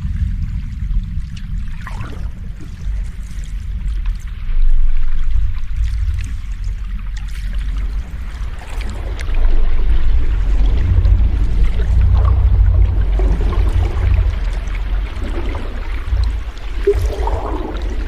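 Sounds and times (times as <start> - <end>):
ocean waves rumbling: 0.0 - 4.6, 8.3 - 18.0
hiss of water: 16.8 - 18.0.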